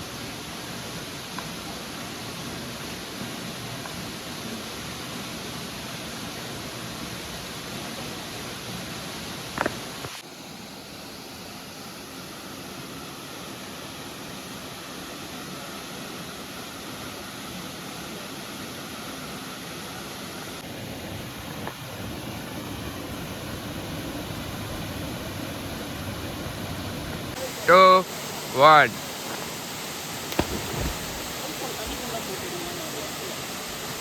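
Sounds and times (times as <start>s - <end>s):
waterfall rushing: 27.4s - 34.0s.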